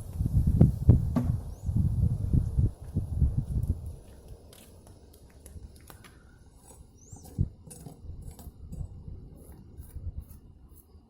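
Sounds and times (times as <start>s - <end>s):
dull thump: 1.1s - 1.4s.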